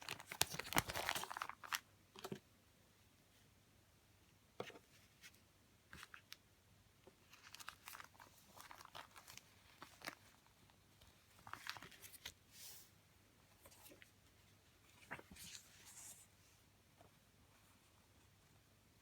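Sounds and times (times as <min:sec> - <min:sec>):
paper and plastic crinkling: 0:00.0 - 0:02.4, 0:07.2 - 0:12.4.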